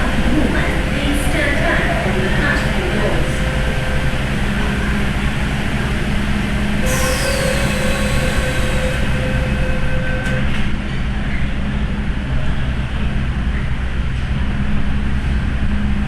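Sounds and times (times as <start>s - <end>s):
high-pitched squeal: 0.0s - 11.8s
electric train rumbling: 0.0s - 16.0s.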